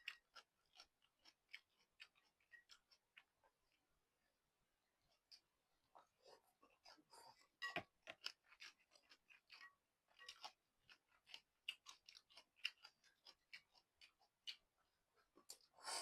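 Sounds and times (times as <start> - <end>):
chewing and wet mouth clicks: 0.0 - 3.8, 8.0 - 15.7.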